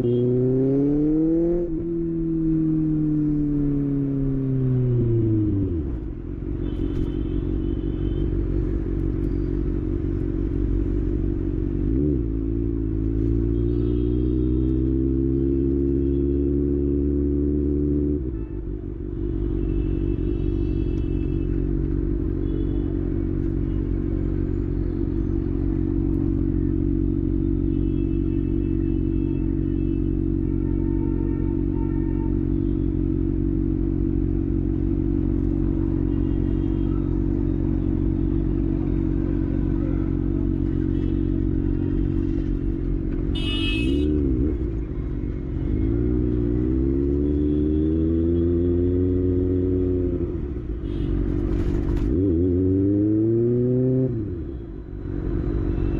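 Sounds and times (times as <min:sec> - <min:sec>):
motorcycle engine revving: 0:00.0 - 0:06.0, 0:45.6 - 0:54.5.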